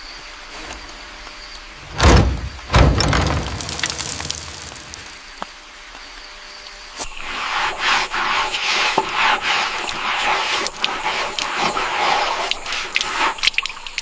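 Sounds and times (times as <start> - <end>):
rough scraping strokes: 7.0 - 13.4.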